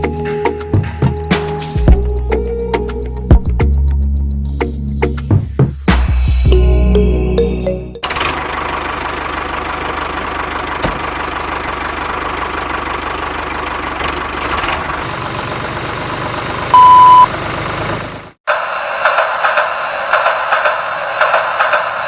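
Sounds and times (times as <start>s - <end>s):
engine running: 6.9s - 22.0s
loud single-pitched beep: 16.8s - 17.3s.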